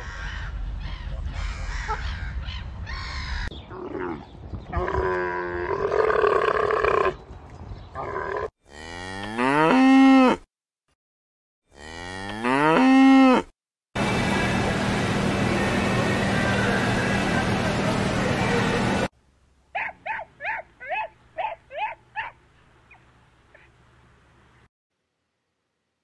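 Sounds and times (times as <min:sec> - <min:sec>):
cattle mooing: 0:08.0 - 0:10.4, 0:11.7 - 0:13.5.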